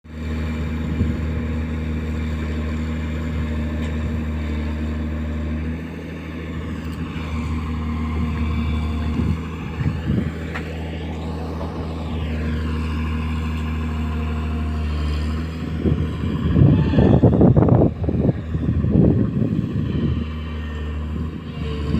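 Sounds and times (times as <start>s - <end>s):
excavator diesel engine running: 0.1s - 21.9s
rising and falling whine: 6.8s - 14.8s.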